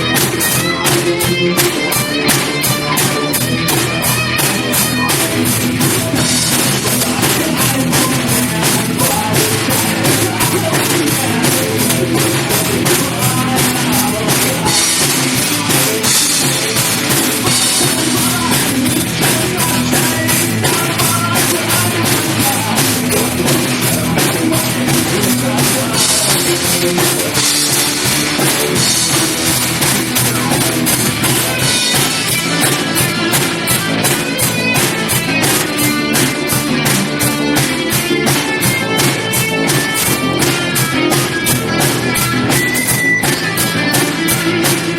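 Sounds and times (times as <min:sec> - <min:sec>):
bass guitar: 0:00.0 - 0:44.9
drum kit hits: 0:00.0 - 0:44.9
guitars: 0:00.0 - 0:44.9.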